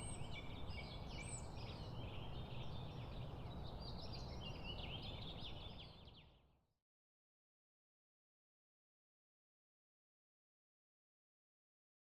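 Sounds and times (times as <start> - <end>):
small birds chirping and trilling: 0.0 - 6.4.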